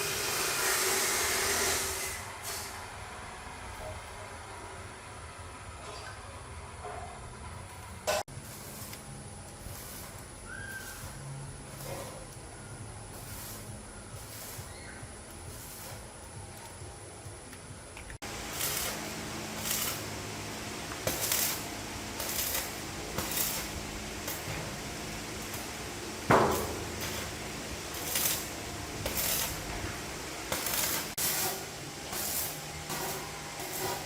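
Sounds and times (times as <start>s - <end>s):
short hissing strokes: 0.0s - 2.8s, 8.4s - 16.4s, 18.2s - 34.0s
steady low hum: 2.2s - 34.0s.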